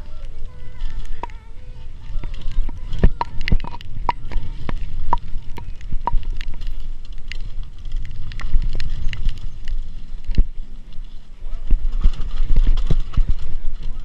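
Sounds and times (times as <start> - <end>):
bike clicks and metallic knocks: 0.0 - 14.0
low rumble of tyres: 0.0 - 14.0.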